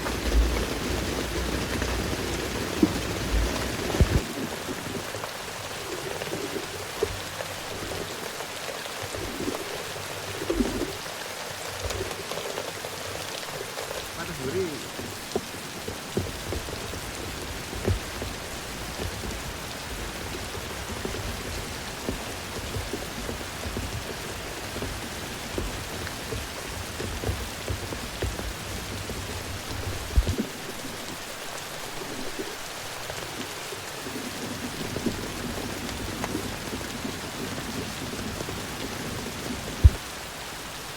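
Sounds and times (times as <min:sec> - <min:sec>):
steady rain in forest: 0:00.0 - 0:40.9.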